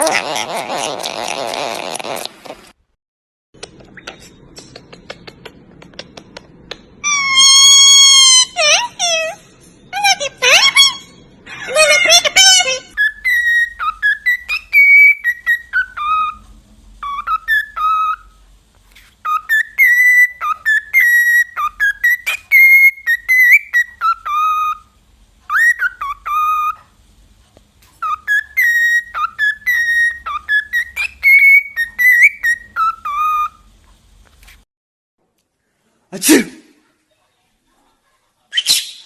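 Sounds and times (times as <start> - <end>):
parrot whistling a tune: 7.0 - 9.3, 11.8 - 16.4, 17.0 - 18.4, 19.2 - 26.8, 28.0 - 33.7.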